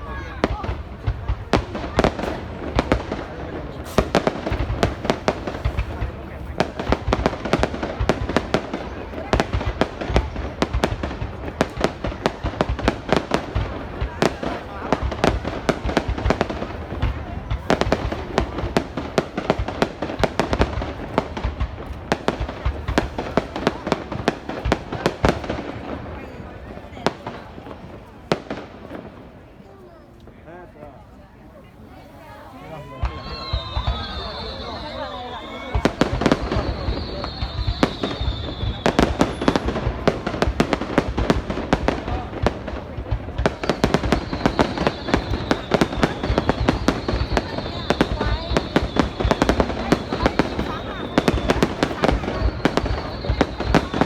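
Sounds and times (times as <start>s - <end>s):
distant fireworks rumble: 0.0s - 54.0s
fireworks bangs and cracks: 0.0s - 54.0s.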